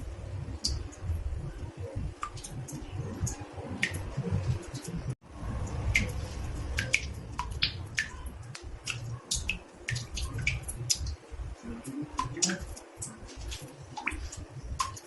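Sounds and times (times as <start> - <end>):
water drops plinking in bathtub: 5.6 - 15.0.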